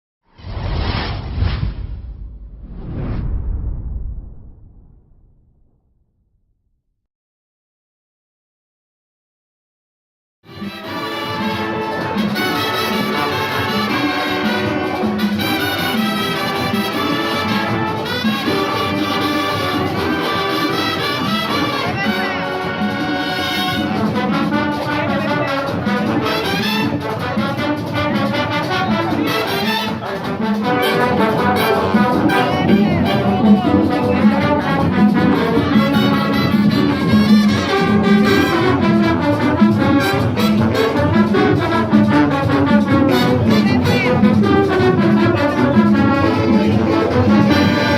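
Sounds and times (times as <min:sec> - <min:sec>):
latin big band playing: 0:10.5 - 0:47.9
trumpets and trombones: 0:10.5 - 0:47.9.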